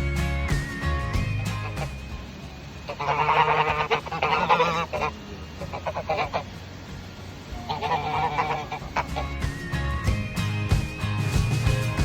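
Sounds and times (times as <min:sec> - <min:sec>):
geese honking: 0:01.2 - 0:10.2.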